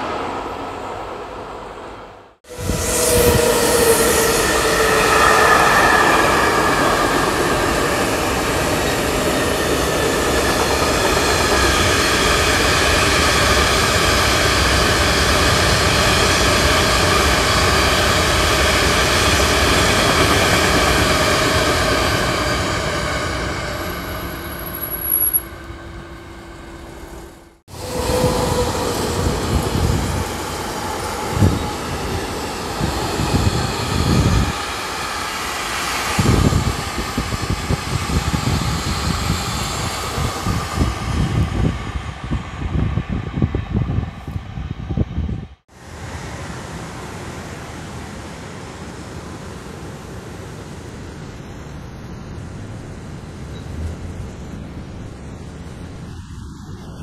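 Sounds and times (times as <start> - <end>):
freight train rumbling past: 0.0 - 57.0
ringing tones from wheels: 23.4 - 27.5.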